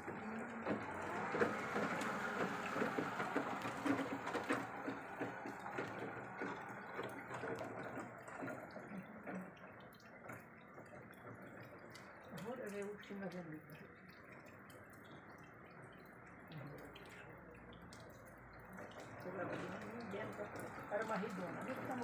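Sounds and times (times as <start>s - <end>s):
wheelchair wheels rattling: 0.0s - 11.9s.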